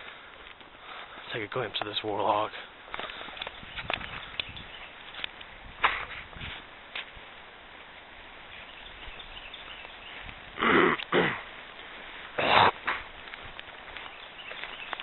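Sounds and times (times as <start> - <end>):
person coughing: 10.6 - 11.4, 12.4 - 12.9.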